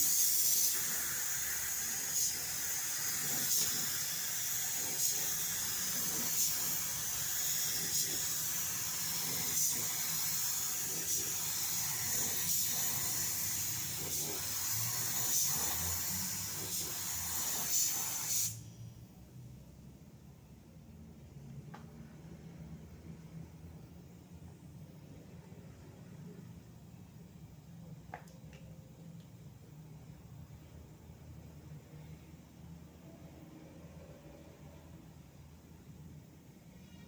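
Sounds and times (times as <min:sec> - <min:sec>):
paint spray gun hissing: 0:00.0 - 0:18.6.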